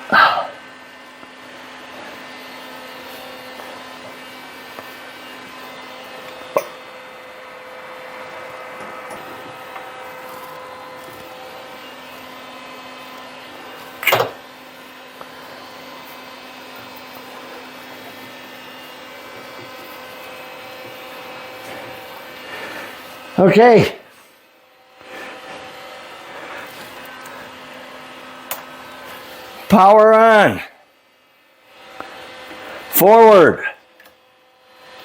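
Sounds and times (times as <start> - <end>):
electric motor humming: 0.0 - 30.7.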